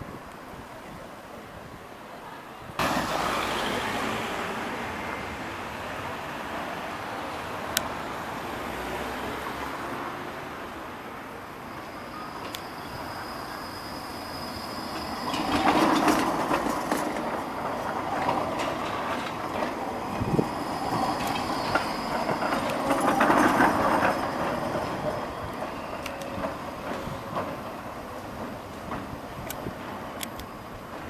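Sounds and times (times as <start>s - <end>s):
tram wheels clattering over rail joints: 2.8s - 31.0s
high squeal of wheel on rail: 11.1s - 30.9s.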